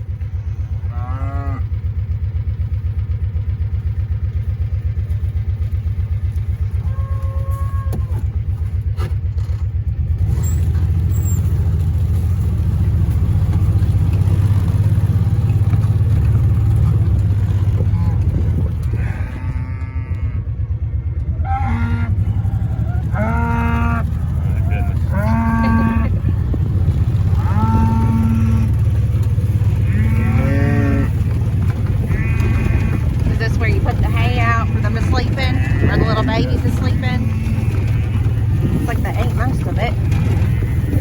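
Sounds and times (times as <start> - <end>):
engine running: 0.0 - 41.0
cattle mooing: 0.6 - 1.8, 6.8 - 8.4, 16.5 - 41.0.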